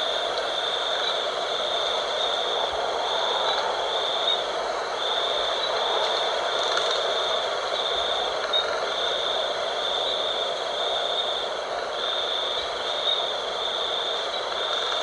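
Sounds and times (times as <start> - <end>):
high steady whine: 0.0 - 15.0
wind rushing: 1.2 - 8.5.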